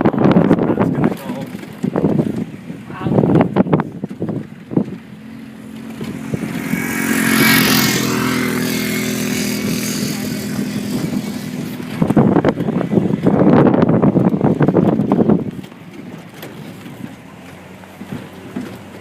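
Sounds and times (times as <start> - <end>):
wind buffeting microphone: 0.0 - 19.0
engine running under load: 5.2 - 13.3
rush of noise: 5.4 - 15.4.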